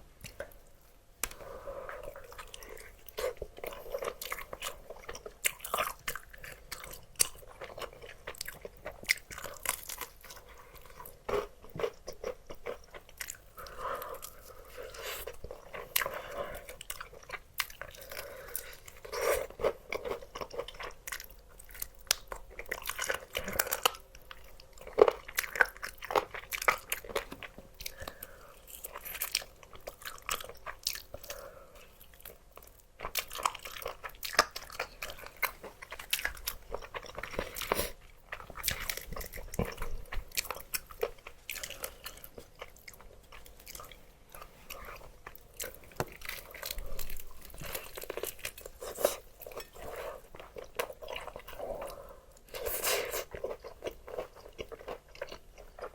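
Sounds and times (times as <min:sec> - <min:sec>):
person chewing crunchy food: 0:00.2 - 0:55.9.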